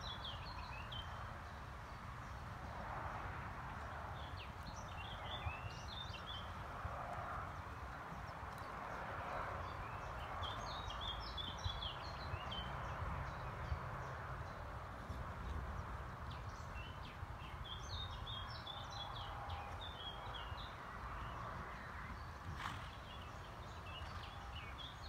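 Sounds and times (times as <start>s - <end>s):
small birds chirping: 9.6s - 14.7s.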